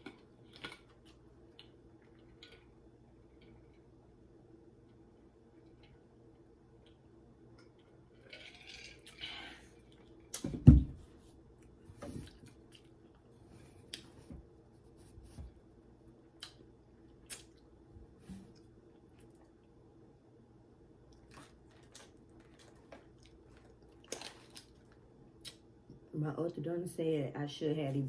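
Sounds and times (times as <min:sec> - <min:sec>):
dull thump: 0:10.5 - 0:11.0.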